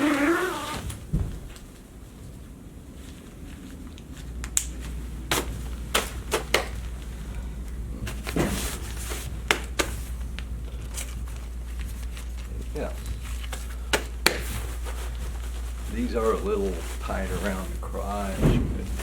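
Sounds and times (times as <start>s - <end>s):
fabric rustling: 0.0s - 1.1s, 14.4s - 19.0s
steady low hum: 0.0s - 19.0s.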